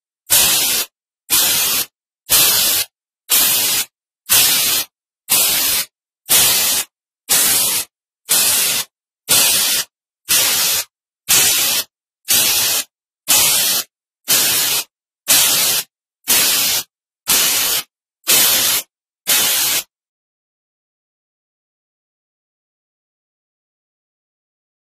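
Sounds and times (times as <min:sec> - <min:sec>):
short bursts of hiss: 0:00.3 - 0:19.9.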